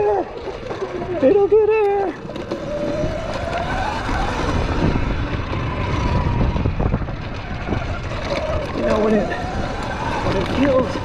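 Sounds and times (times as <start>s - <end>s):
wind rumble on microphone: 0.1s - 11.0s
electric motor whining: 2.4s - 11.0s.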